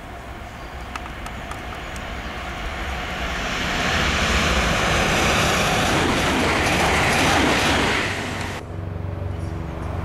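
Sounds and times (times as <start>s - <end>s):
electric train passing: 0.0s - 10.0s.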